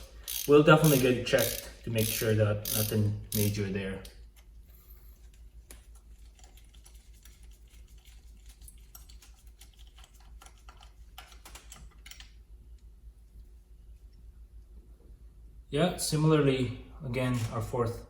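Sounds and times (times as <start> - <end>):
socket ratchet clicking: 0.0 - 4.2.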